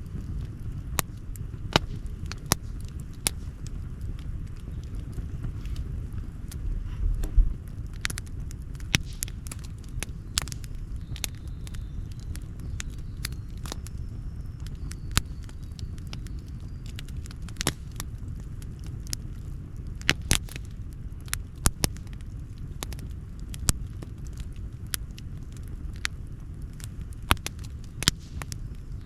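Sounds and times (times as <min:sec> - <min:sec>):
low rumble: 0:00.0 - 0:20.0
campfire crackling and popping: 0:00.0 - 0:29.0.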